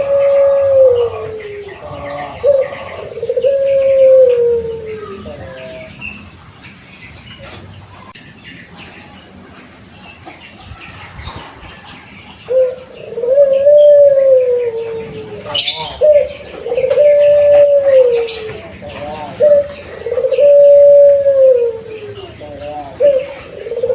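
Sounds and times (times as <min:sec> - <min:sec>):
dove cooing: 0:00.0 - 0:06.2, 0:12.4 - 0:23.9.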